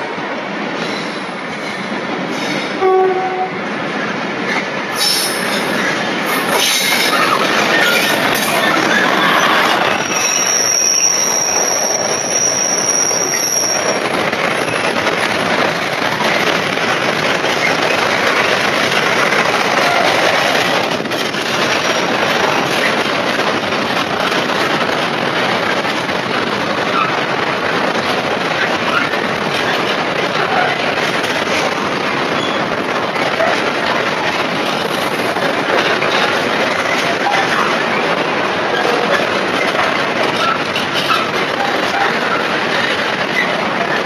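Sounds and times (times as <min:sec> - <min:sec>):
diesel locomotive passing: 0:00.0 - 0:44.0
freight wagons clattering on rails: 0:04.4 - 0:44.0
high wheel squeal: 0:06.6 - 0:14.0.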